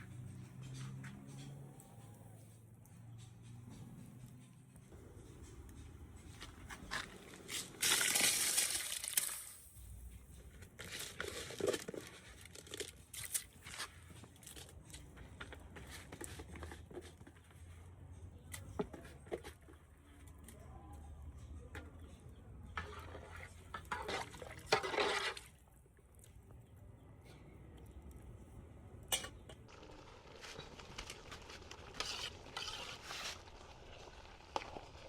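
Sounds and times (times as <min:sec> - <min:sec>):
crinkling and rustling: 0:05.7 - 0:20.6, 0:29.6 - 0:35.0.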